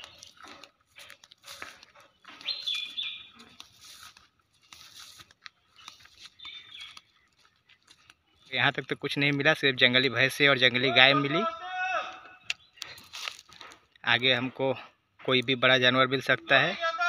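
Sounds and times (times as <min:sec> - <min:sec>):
bird calling: 0:00.0 - 0:04.1, 0:05.5 - 0:08.8, 0:10.0 - 0:13.1
footsteps in dry grass: 0:00.0 - 0:15.9.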